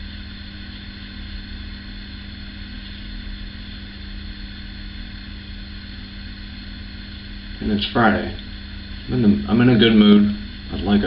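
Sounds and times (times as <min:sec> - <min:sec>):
electrical hum: 0:00.0 - 0:11.0
even hiss: 0:07.3 - 0:11.0.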